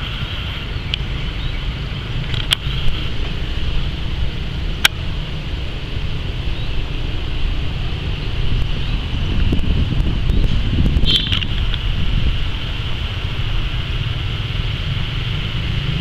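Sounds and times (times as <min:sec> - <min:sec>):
train rumbling with high whine: 0:00.0 - 0:16.0
sharp clicks: 0:02.2 - 0:03.3, 0:11.0 - 0:11.8.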